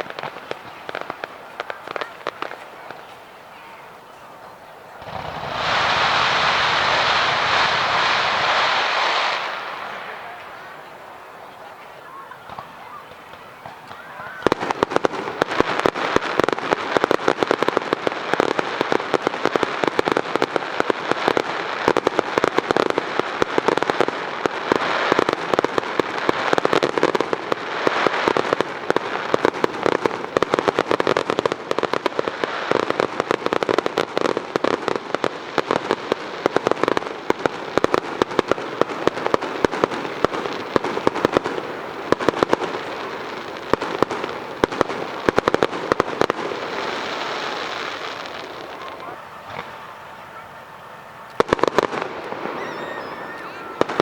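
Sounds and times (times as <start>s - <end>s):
fireworks crackling and popping: 0.0s - 54.0s.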